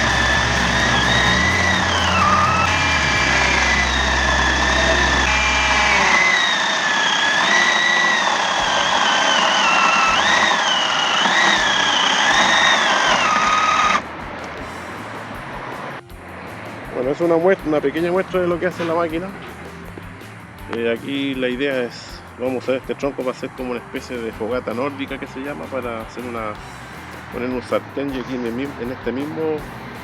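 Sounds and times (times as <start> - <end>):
chainsaw cutting wood: 0.0 - 14.6.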